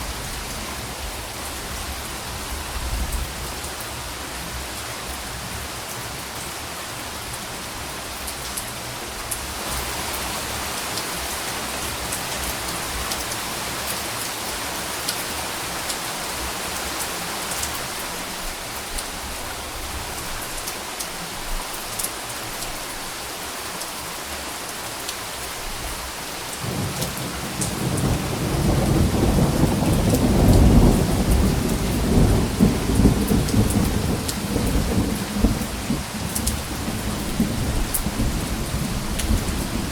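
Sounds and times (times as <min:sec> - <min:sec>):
rain falling: 0:00.0 - 0:39.9
thunder rumbling: 0:26.6 - 0:39.9.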